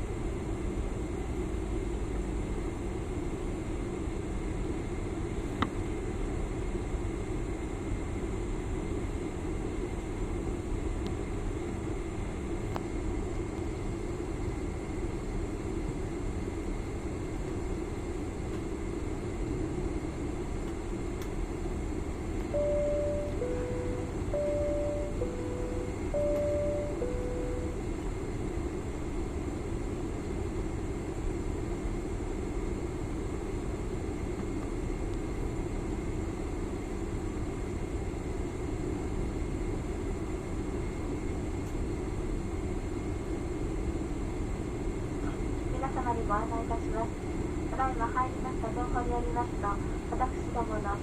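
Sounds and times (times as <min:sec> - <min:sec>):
airliner cabin engine noise: 0:00.0 - 0:51.0
two-note cabin chime: 0:22.6 - 0:27.8.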